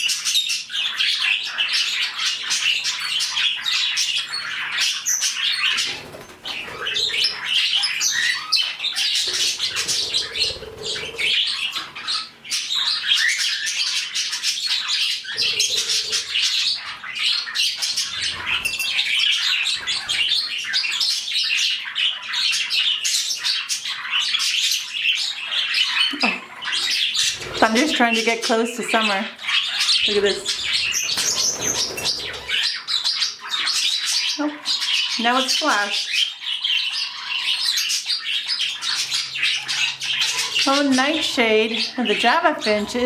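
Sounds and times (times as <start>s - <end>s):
budgies chattering: 0.0s - 43.0s
wings flapping: 30.9s - 32.6s.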